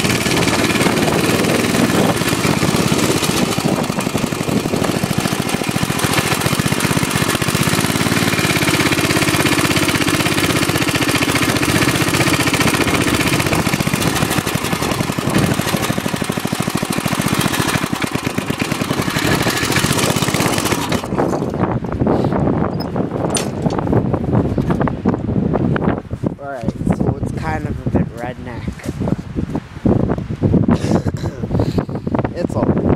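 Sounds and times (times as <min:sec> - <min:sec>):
small dirt bike engine running: 0:00.0 - 0:22.1.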